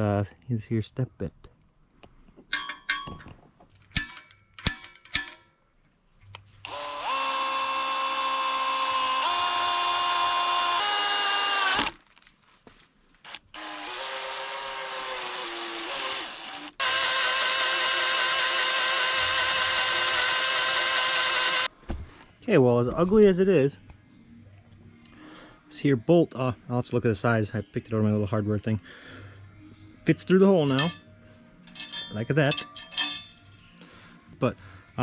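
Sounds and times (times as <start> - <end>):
light metal clinks: 2.5 - 5.6, 30.6 - 31.0, 31.6 - 33.8
electric drill whining: 6.6 - 12.0, 13.2 - 21.7.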